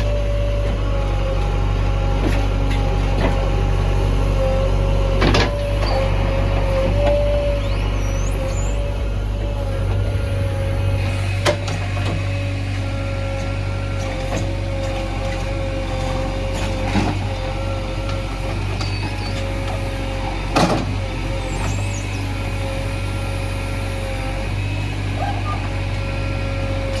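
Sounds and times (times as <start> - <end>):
diesel engine running under load: 0.0 - 27.0
steady whine: 4.3 - 14.8.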